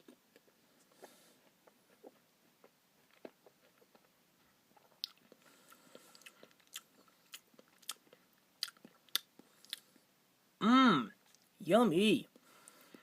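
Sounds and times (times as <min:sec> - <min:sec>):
person chewing: 0:00.0 - 0:10.0.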